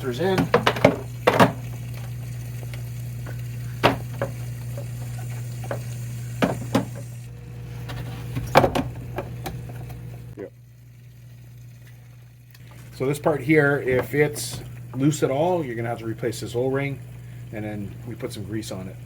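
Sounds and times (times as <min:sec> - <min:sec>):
steady low hum: 0:00.0 - 0:19.0
plastic cartridges knocking: 0:00.4 - 0:01.7.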